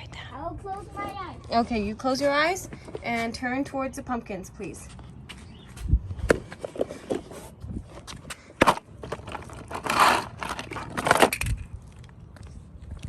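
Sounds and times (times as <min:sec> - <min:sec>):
crunching and scraping: 0:06.4 - 0:13.0.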